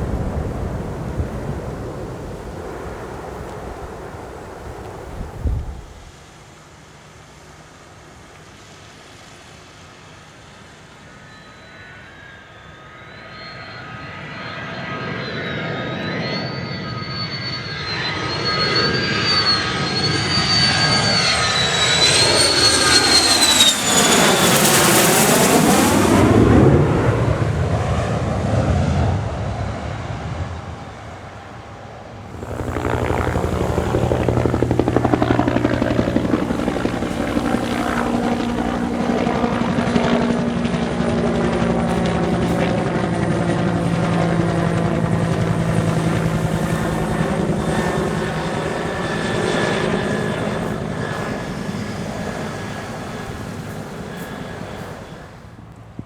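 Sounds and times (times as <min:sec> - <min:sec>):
jet engine passing: 0:00.0 - 0:06.2, 0:11.3 - 0:31.0, 0:32.2 - 0:56.0
helicopter engine and rotor: 0:10.7 - 0:26.7, 0:32.3 - 0:56.0
high whine wavering in pitch: 0:11.1 - 0:26.3, 0:32.3 - 0:55.8.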